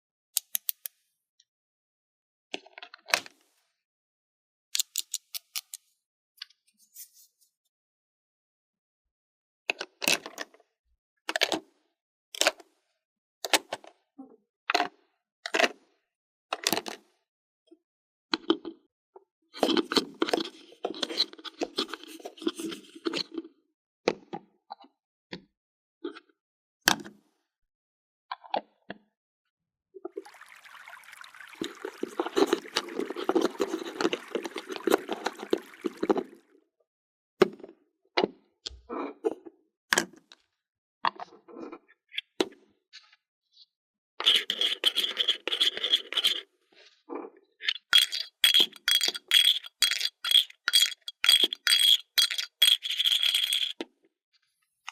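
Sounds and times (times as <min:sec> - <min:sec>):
plastic toy pieces clicking: 0:47.9 - 0:53.8
plastic pieces scraping and rustling: 0:48.0 - 0:53.8.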